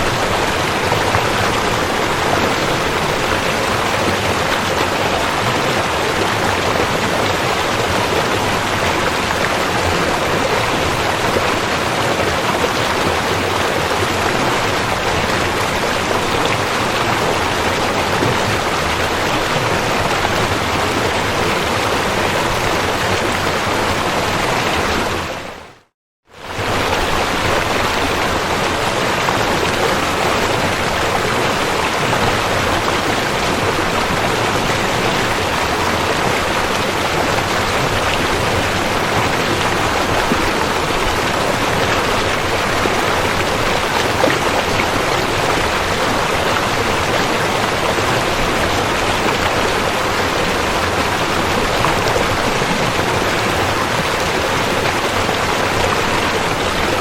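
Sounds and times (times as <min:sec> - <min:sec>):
river water rushing over rocks: 0:00.0 - 0:25.6, 0:26.4 - 0:57.0.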